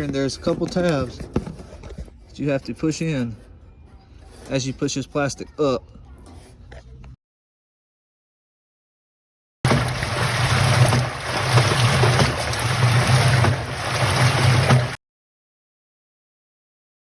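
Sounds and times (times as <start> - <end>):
washing machine running: 9.7 - 15.0.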